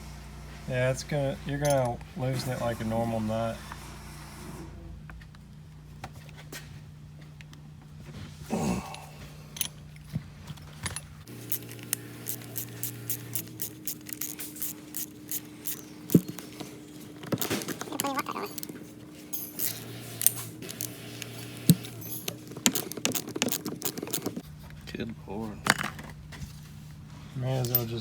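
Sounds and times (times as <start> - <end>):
metal tools clinking: 1.5 - 2.0, 8.9 - 24.4, 27.5 - 28.0.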